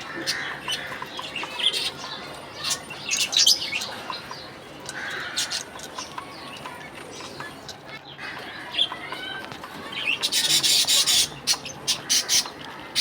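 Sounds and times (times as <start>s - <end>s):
budgerigars chirping: 0.0s - 2.0s, 10.0s - 13.0s.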